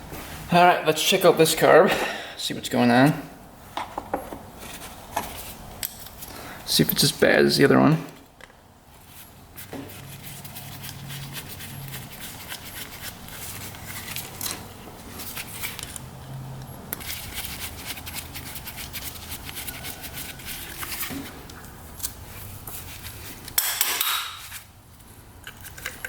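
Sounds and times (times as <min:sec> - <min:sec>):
hand tools clicking and scraping metal: 0:04.6 - 0:07.0, 0:09.0 - 0:16.1, 0:16.9 - 0:26.0.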